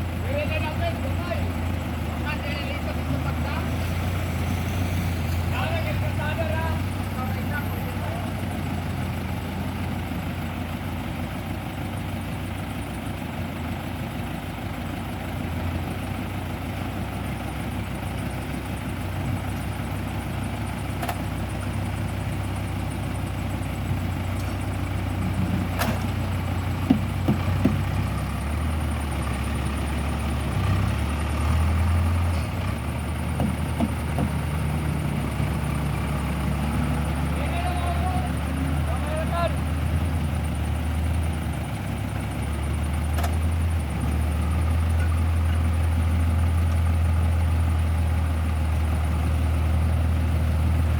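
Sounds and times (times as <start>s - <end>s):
diesel engine running: 0.0s - 50.9s
sharp knocks: 33.3s - 34.5s.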